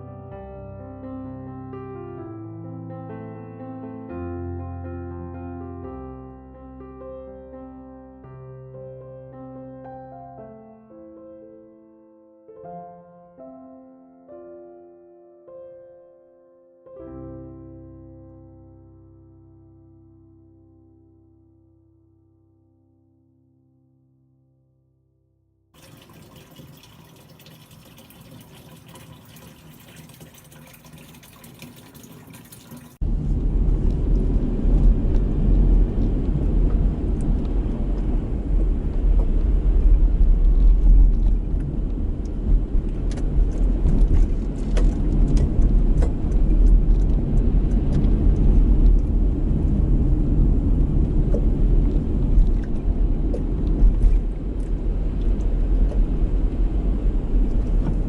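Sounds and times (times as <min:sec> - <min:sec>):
gusty wind buffeting microphone: 0:33.0 - 0:58.0.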